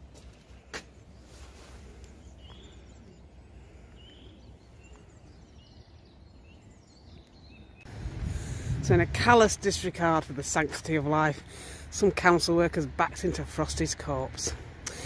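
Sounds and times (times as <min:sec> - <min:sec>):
high bird chirps: 0:02.1 - 0:07.9
low steady rumble: 0:07.8 - 0:10.6.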